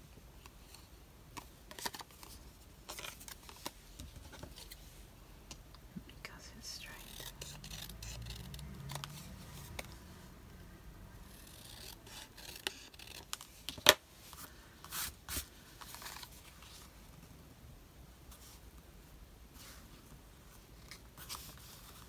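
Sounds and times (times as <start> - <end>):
scissors cutting paper: 7.0 - 9.9, 11.3 - 13.4.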